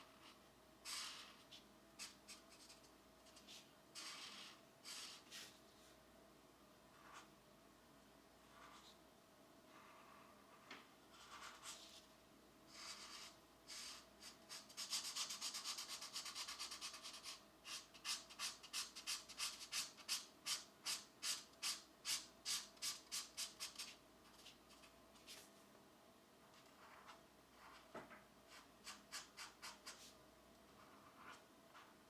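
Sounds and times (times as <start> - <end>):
pencil coloring on paper: 0.0 - 5.5, 9.7 - 12.0, 12.7 - 24.6, 28.5 - 30.2, 30.8 - 32.0.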